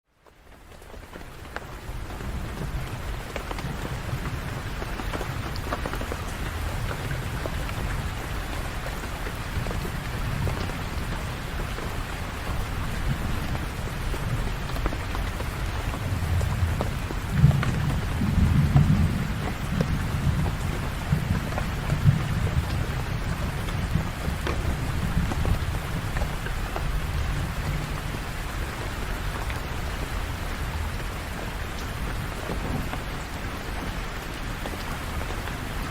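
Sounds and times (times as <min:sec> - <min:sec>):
steady rain falling: 0:00.0 - 0:35.9
low thunder rumble: 0:12.4 - 0:28.2.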